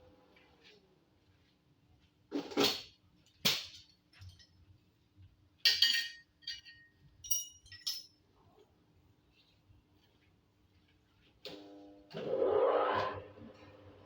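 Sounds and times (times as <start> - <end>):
metal clanks and clinks: 5.7 - 8.2.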